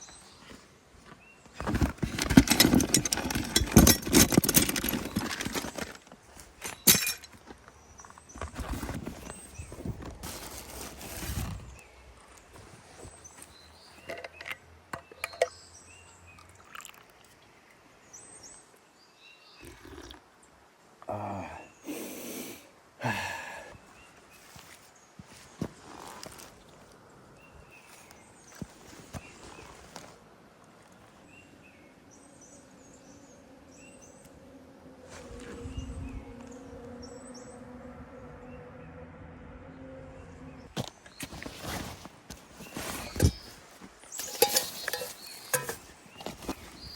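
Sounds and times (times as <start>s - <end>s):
quiet forest ambience: 0.0s - 46.9s
small birds chirping: 23.6s - 30.1s, 40.2s - 46.9s.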